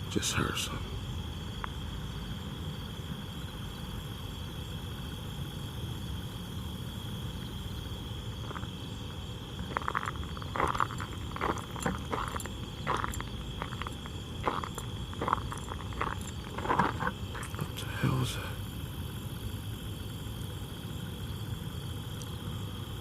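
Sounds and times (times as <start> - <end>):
crickets trilling: 0.0 - 23.0
low background rumble: 0.0 - 23.0
short scuffing or crunching: 9.6 - 17.8.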